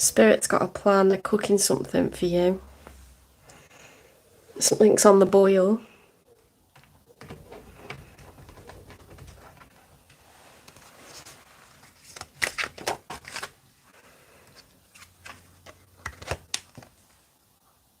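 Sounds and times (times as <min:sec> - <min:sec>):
cards shuffling: 0:06.8 - 0:13.6, 0:14.4 - 0:17.0.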